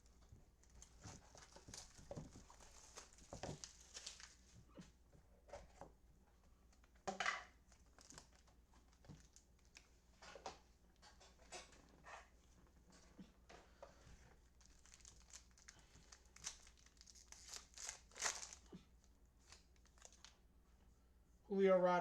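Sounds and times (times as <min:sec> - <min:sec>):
cards and wrappers rustling: 0:00.1 - 0:04.6, 0:06.7 - 0:10.6, 0:14.2 - 0:20.4
wrapper crinkle: 0:00.6 - 0:04.5, 0:07.6 - 0:10.0, 0:14.4 - 0:18.8, 0:19.4 - 0:20.4.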